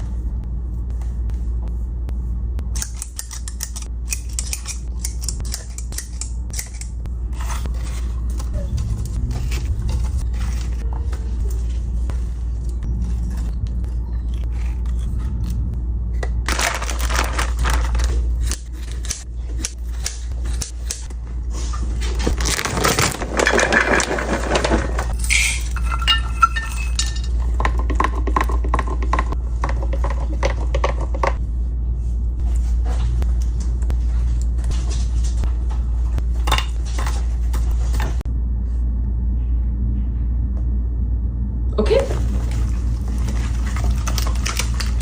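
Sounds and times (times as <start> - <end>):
steady low hum: 0.0 - 45.0
dishes and utensils clattering: 23.2 - 31.4.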